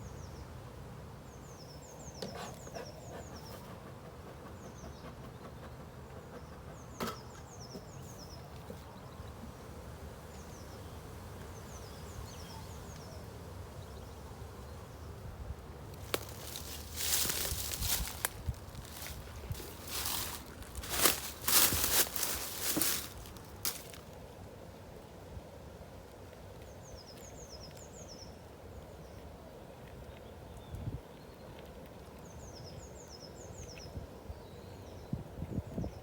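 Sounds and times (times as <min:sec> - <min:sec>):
honeybees humming: 0:16.0 - 0:24.0.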